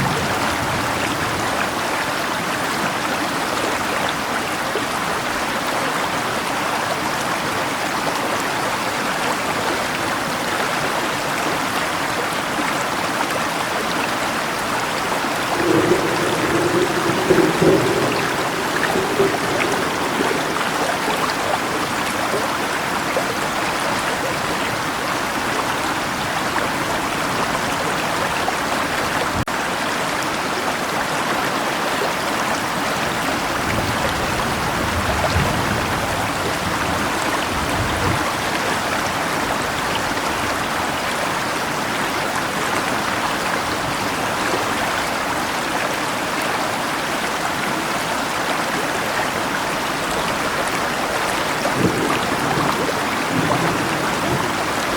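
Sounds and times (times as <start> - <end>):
river flowing: 0.0 - 54.9
distant thunder rumble: 15.2 - 23.6, 51.5 - 54.9.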